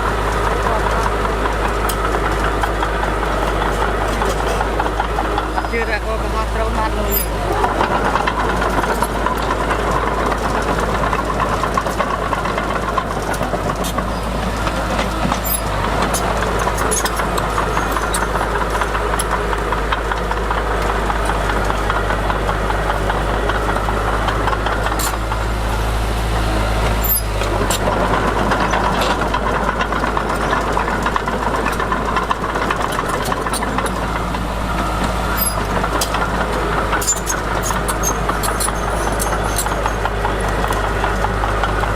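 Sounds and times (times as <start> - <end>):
heavy diesel engine rumbling: 0.0 - 41.9
sharp clanks and rattles: 0.0 - 41.9.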